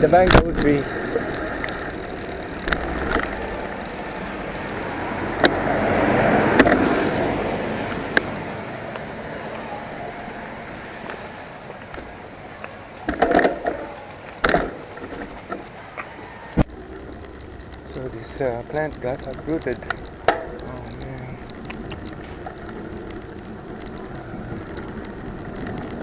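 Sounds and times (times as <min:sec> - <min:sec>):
vehicle passing: 0:00.7 - 0:13.2.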